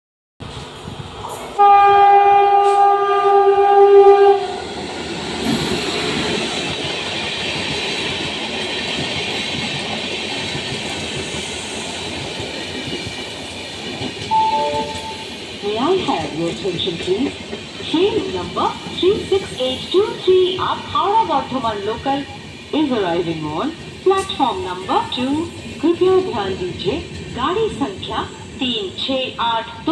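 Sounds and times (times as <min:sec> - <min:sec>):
train rumbling along track: 0:00.4 - 0:29.9
train horn: 0:01.6 - 0:04.6.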